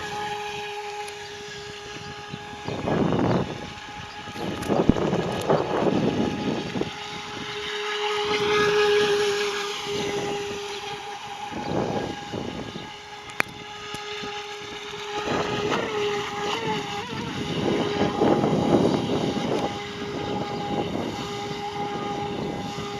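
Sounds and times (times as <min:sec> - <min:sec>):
electric boat motor whining: 0:00.0 - 0:22.9
sharp click: 0:13.2 - 0:13.6.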